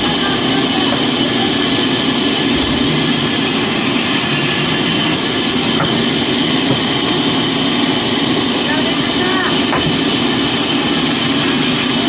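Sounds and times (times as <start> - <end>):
machine running loudly: 0.0 - 12.0.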